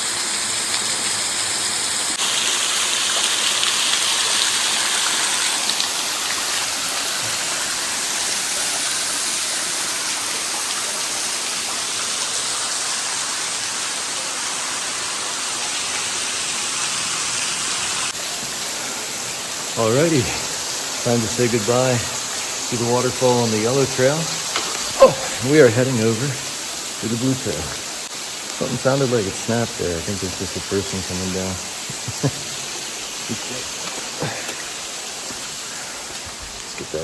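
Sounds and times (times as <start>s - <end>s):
waterfall splashing: 0.0s - 37.0s.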